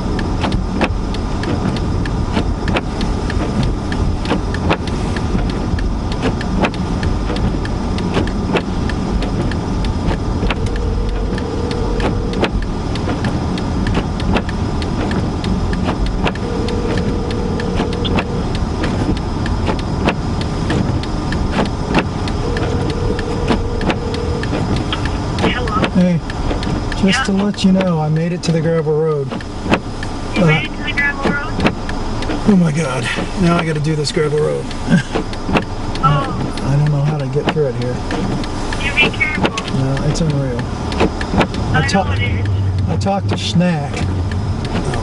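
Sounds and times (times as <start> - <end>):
car interior rumble: 0.0 - 45.0
sharp clicks and ticks: 0.0 - 45.0
short steady tone: 16.4 - 18.6.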